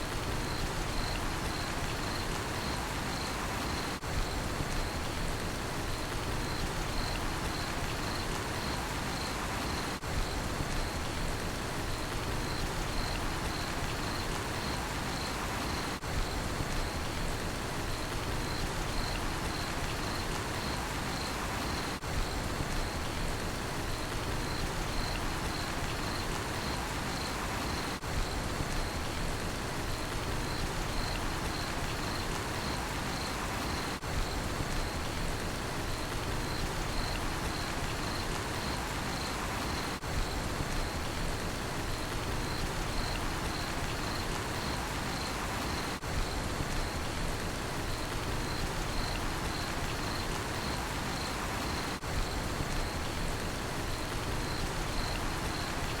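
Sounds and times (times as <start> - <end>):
rain falling: 0.0 - 56.0
cricket chirping: 0.2 - 5.2, 5.9 - 11.1, 11.9 - 17.2, 17.9 - 23.1, 24.0 - 29.2, 29.9 - 35.2, 35.8 - 56.0.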